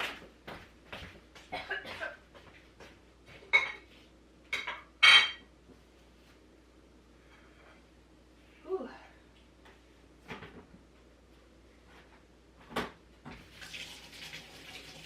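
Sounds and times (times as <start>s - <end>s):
plate and spoon clinking: 4.6s - 5.5s.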